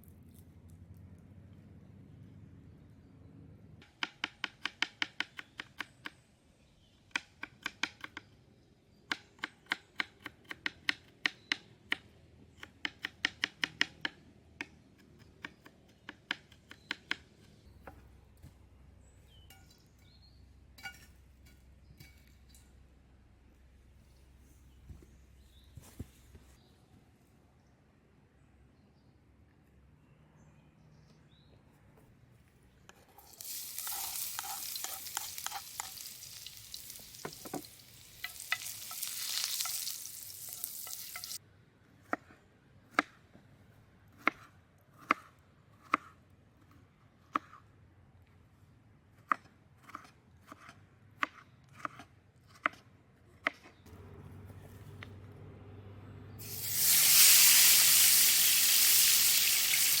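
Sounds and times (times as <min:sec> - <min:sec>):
food sizzling in a pan: 0:33.2 - 0:41.4, 0:56.4 - 1:00.0.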